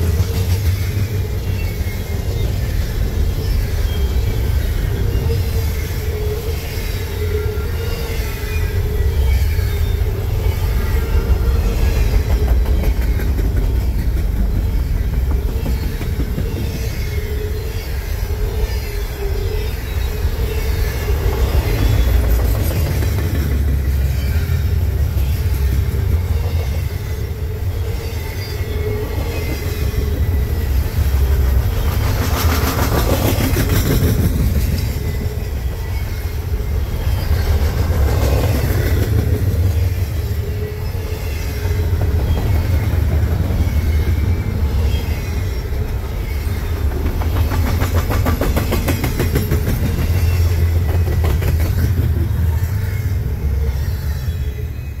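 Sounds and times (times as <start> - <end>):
wheels clickety-clack: 0.0 - 6.3, 10.2 - 17.5, 20.2 - 54.1
freight train rumbling past: 0.0 - 55.0.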